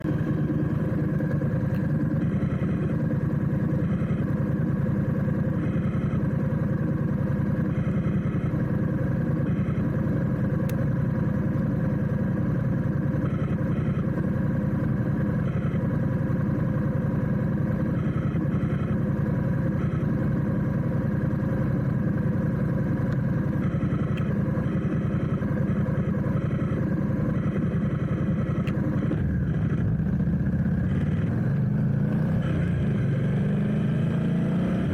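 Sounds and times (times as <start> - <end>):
motorcycle engine running steadily: 0.0 - 34.9.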